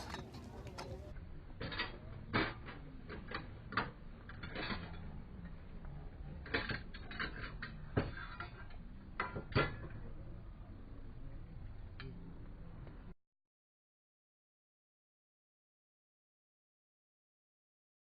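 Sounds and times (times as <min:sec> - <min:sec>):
faint steady background noise: 0:00.0 - 0:13.2.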